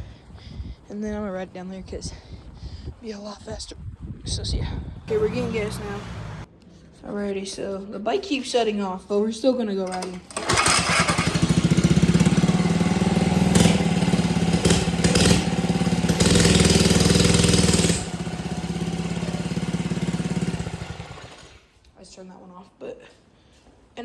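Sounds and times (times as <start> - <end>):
small engine revving and idling: 5.1 - 6.5, 10.0 - 21.7.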